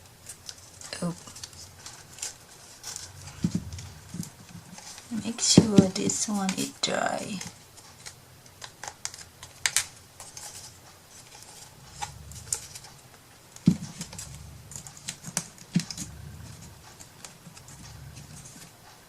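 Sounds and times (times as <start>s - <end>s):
heavier knocks: 3.2s - 4.4s.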